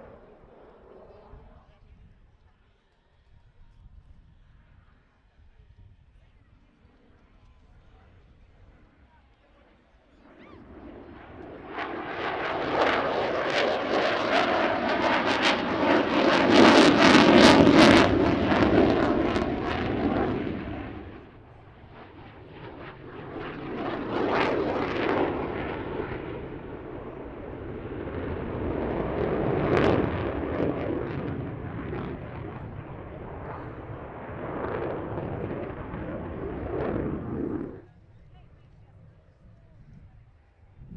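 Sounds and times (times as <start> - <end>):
aircraft roaring past: 10.2 - 37.9.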